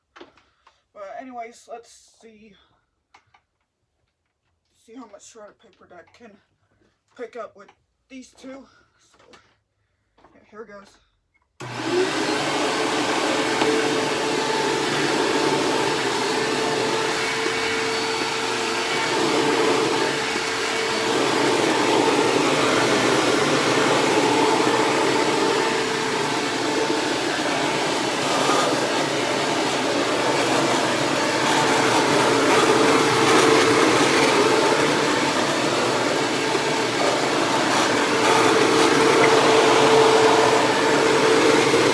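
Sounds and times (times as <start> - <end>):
upright vacuum cleaner running: 11.6 - 41.9.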